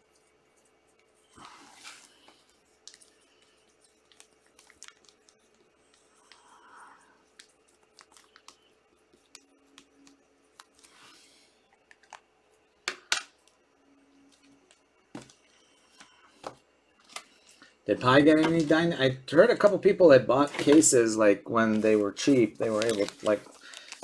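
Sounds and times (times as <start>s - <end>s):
card pack rustle: 1.4s - 6.2s, 17.0s - 19.0s, 21.6s - 24.0s
cards clicking and tapping: 22.7s - 24.0s.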